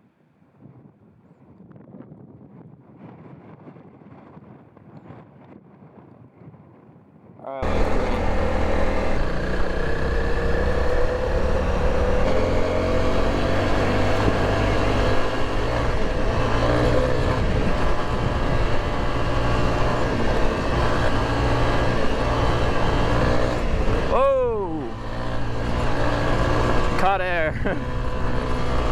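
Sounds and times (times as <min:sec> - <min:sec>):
road and wind rumble: 0:00.6 - 0:06.9, 0:07.6 - 0:28.9
motorcycle engine running: 0:07.6 - 0:28.9.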